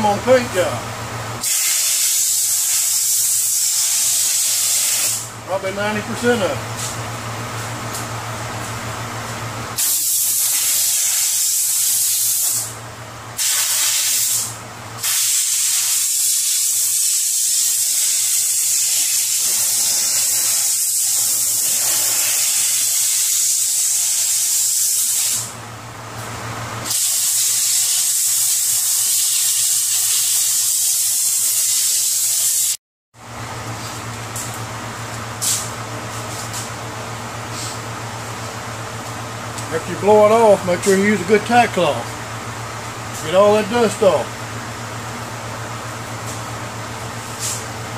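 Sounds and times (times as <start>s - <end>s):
air blow gun hissing: 1.4s - 5.3s, 9.8s - 12.7s, 13.4s - 25.5s.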